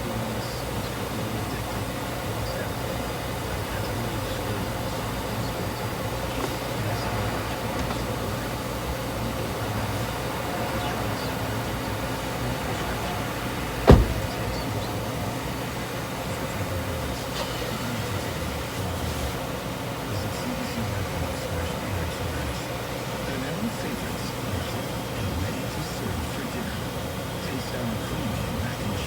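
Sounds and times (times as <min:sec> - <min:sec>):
low mechanical hum: 0:00.0 - 0:29.0
loud thump: 0:13.8 - 0:14.6.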